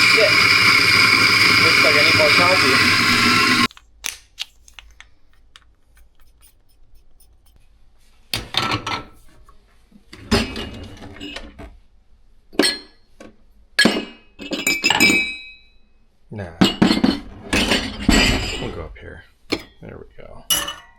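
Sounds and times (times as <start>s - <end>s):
dishes and utensils clattering: 8.4s - 9.2s, 10.2s - 11.7s, 13.8s - 15.6s, 16.6s - 18.8s, 20.5s - 20.9s.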